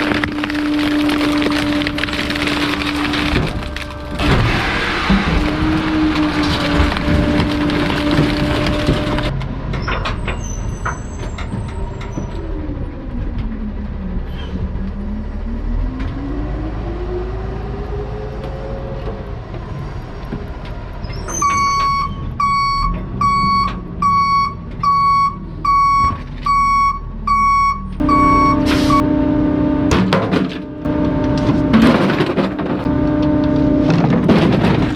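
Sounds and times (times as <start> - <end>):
truck engine running: 0.0 - 9.6, 21.8 - 34.9
garbage truck crushing: 0.0 - 13.7, 26.0 - 34.9
reversing alarm beeps: 21.4 - 29.1.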